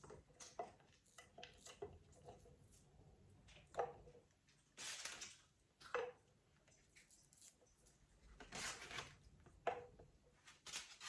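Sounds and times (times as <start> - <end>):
plastic rustle: 4.8 - 5.5.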